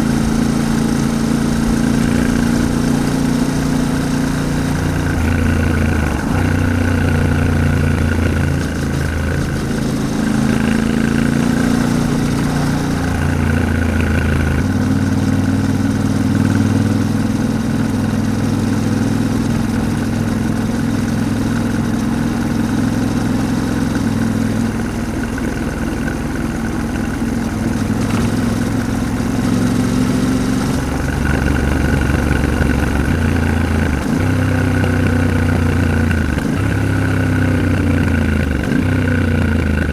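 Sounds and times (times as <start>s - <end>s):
motorcycle engine running: 0.0s - 39.9s
rush of noise: 1.9s - 14.7s.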